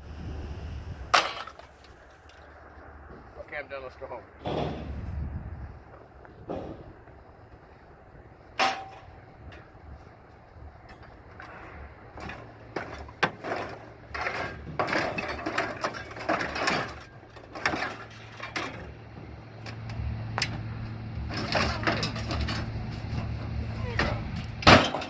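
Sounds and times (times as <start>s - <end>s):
truck engine hum: 0.0s - 25.0s
knocks clanks and rattles: 6.4s - 7.2s, 8.5s - 9.8s, 10.7s - 25.0s.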